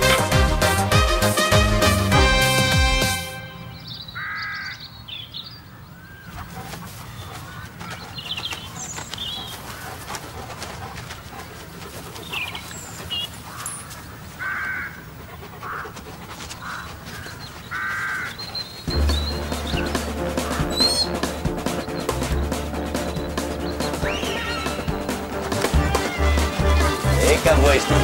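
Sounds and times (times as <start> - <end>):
harsh bird calls: 3.4 - 28.0
high bird chirps: 3.5 - 6.3, 17.2 - 25.1.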